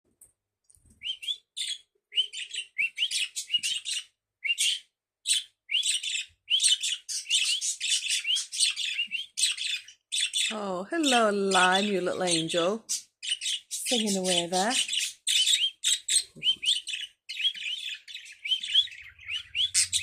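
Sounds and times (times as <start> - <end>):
budgerigar warbling: 12.9 - 20.0.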